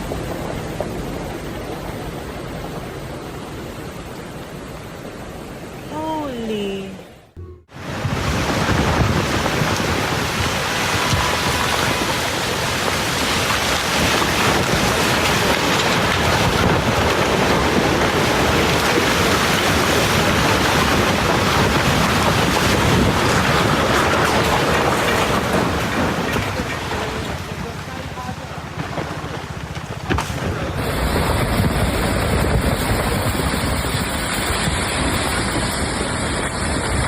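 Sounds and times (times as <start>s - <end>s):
rushing water: 7.7s - 37.0s
storm wind rushing: 7.8s - 26.7s, 30.5s - 37.0s
wind buffeting microphone: 7.8s - 37.0s.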